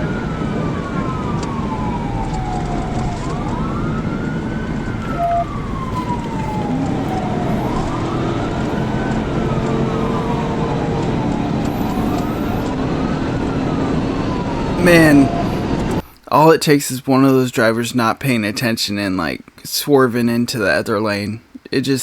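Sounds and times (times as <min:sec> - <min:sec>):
police siren wailing: 0:00.0 - 0:16.1
road and engine noise: 0:00.0 - 0:16.2.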